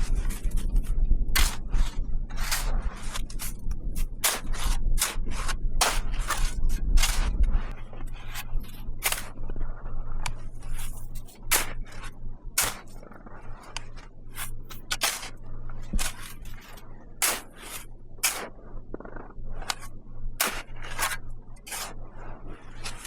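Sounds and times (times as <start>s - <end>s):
low steady hum: 0.0s - 23.0s
short scraping strokes: 10.6s - 12.9s, 14.3s - 18.6s, 19.6s - 23.0s.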